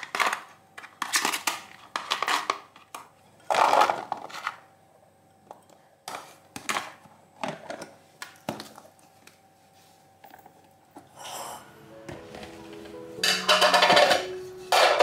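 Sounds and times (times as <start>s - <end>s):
quiet background music: 9.0s - 15.0s
kitchen utensils knocking and clicking: 13.2s - 15.0s.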